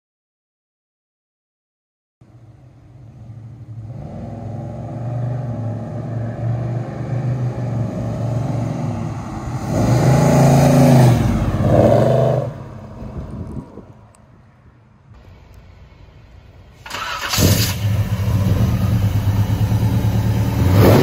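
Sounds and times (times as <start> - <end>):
car engine running and revving: 17.4 - 21.0.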